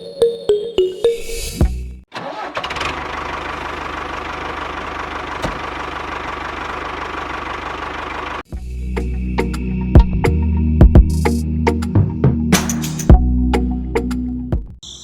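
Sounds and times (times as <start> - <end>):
small engine running: 2.2 - 8.4.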